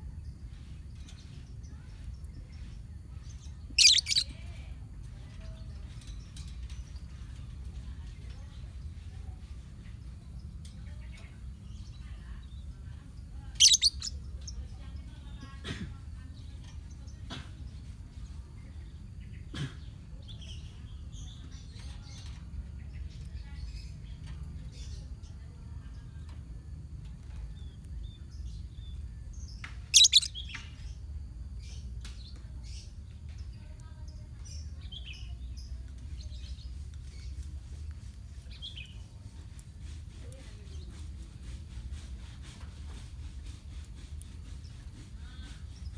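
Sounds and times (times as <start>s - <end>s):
lovebirds chirping: 2.4s - 4.5s, 13.3s - 14.8s, 27.5s - 31.0s
shrill bird calls: 3.8s - 4.3s, 13.6s - 14.1s, 30.0s - 30.4s.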